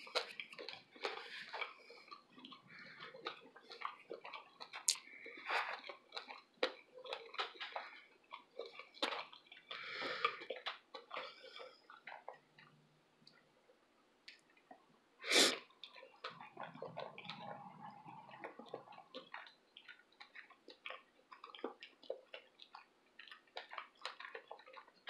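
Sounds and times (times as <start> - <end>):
mouth chewing clicks and smacks: 0.0 - 25.0
breath noise burst: 15.2 - 15.6.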